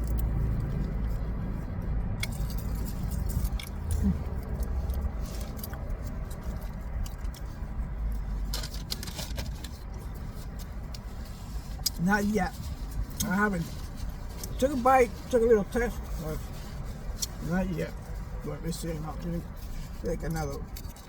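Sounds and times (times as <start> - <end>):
person chewing food: 0.0 - 14.6
vehicle idling rumble: 0.0 - 21.0.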